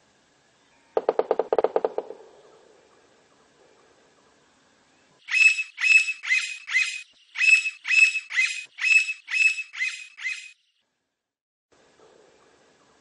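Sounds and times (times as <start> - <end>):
woodpecker calling ringing notes: 5.2 - 10.6.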